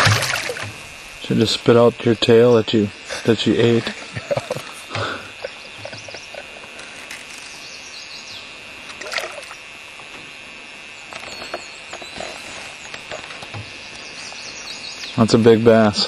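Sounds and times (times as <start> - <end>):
water hissing: 0.0 - 1.3.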